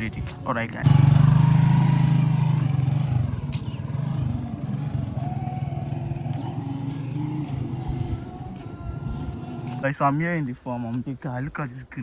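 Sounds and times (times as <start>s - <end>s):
vehicle engine running: 0.8s - 9.8s.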